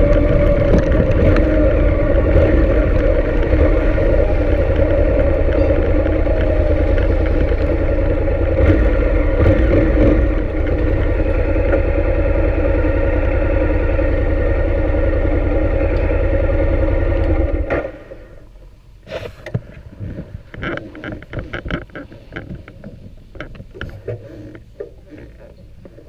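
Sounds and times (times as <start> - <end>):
motorcycle engine running: 0.0 - 18.7.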